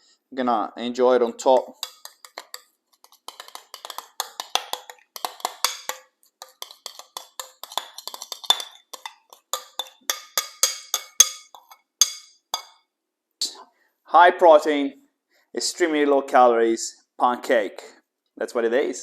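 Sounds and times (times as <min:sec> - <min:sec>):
cutlery clinking on ceramic dish: 0:01.5 - 0:12.8.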